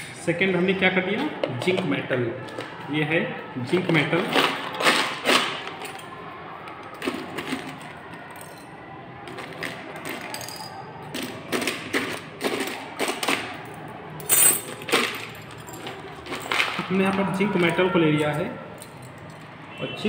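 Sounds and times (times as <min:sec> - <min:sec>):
metal pieces tapping and clinking: 0:09.3 - 0:13.4, 0:14.2 - 0:16.8.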